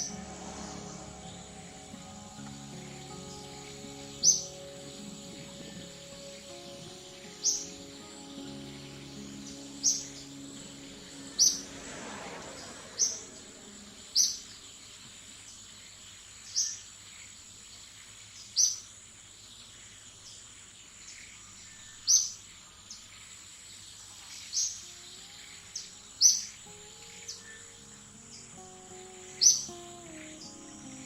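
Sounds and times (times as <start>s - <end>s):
high-pitched insect-like hiss: 0.0s - 15.9s, 24.0s - 31.0s
bird chirping: 0.0s - 31.0s.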